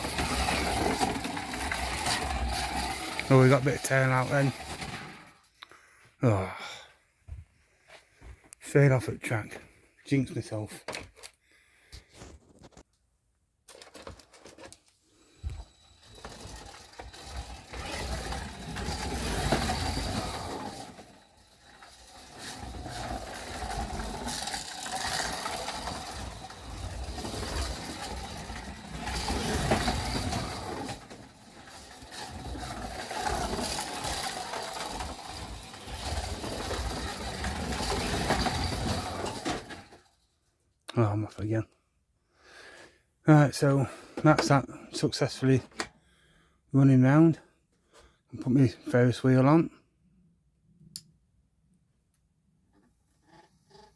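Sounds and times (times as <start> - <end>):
wheels rumbling on track: 0.0 - 5.4, 15.6 - 40.1
slot car motor whirring: 0.0 - 5.5, 15.1 - 40.4, 52.7 - 53.9.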